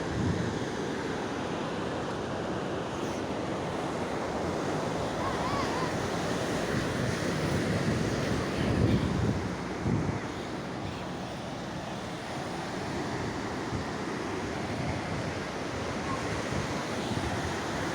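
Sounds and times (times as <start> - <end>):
sea waves washing onto shore: 0.0 - 17.9
wind buffeting microphone: 4.5 - 17.9.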